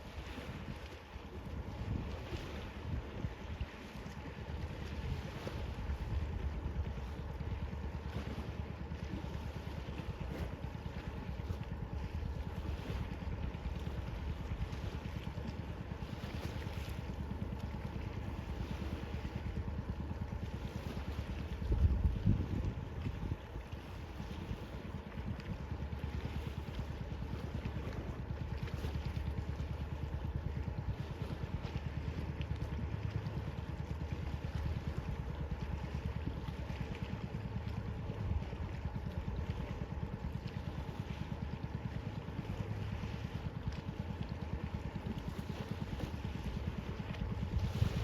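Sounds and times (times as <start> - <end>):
boat engine droning: 0.0 - 48.0
wind noise: 21.6 - 23.5.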